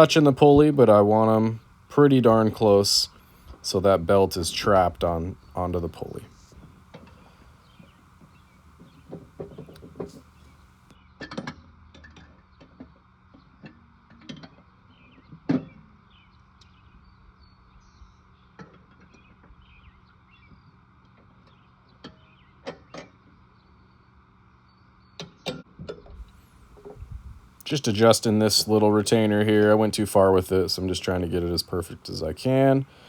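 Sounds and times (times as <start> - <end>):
faint steady hum: 0.0 - 11.0, 26.2 - 33.0.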